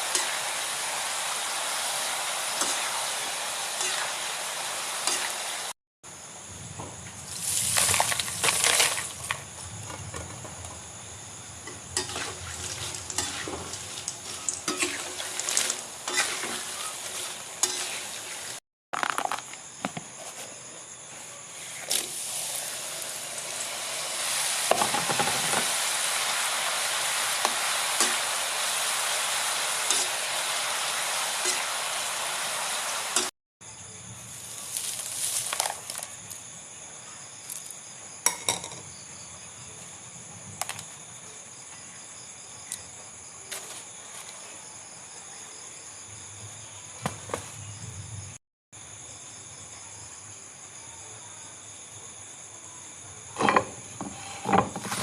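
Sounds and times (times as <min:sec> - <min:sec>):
food sizzling in hot oil: 0:00.0 - 0:05.8, 0:07.2 - 0:09.5, 0:10.6 - 0:18.6, 0:21.6 - 0:33.3, 0:34.3 - 0:36.0
utensil stirring in pan: 0:11.7 - 0:18.6, 0:21.5 - 0:33.3.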